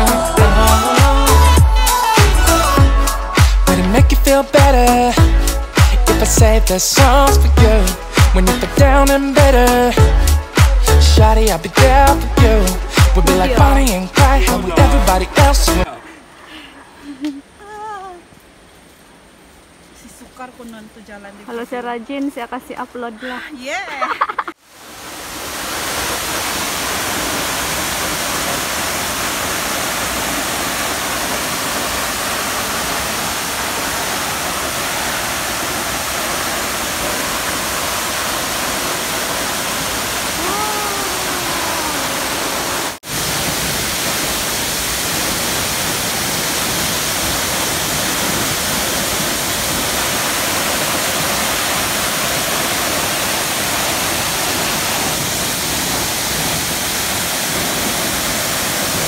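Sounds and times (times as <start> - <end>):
waterfall rushing: 0.0 - 16.4, 24.1 - 59.0.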